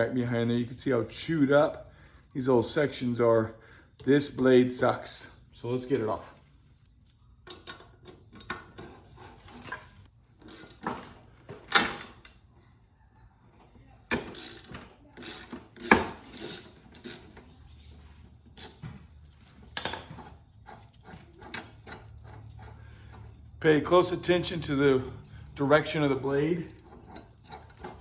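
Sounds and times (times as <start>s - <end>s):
ratchet wrench clicking: 14.2s - 17.3s.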